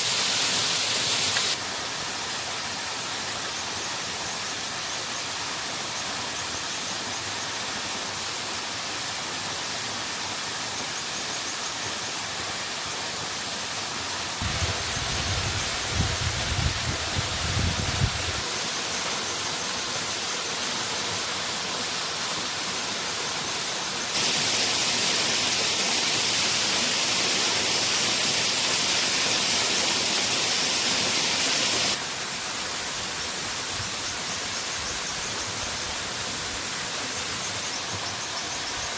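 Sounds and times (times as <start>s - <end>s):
waterfall rushing water: 0.0s - 4.7s, 18.2s - 33.7s.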